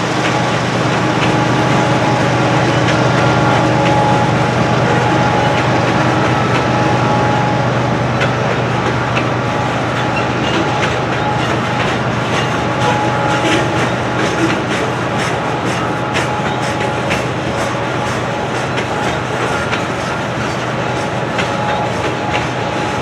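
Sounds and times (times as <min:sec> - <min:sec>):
train wheels rumbling on rails: 0:00.0 - 0:23.0
wheel clicks over rail joints: 0:08.2 - 0:23.0.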